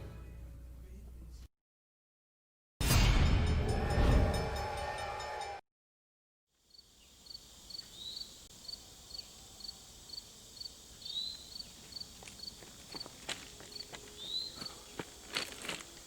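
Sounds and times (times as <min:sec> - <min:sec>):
cricket chirping: 0:06.6 - 0:16.0
faint outdoor ambience: 0:06.6 - 0:16.0.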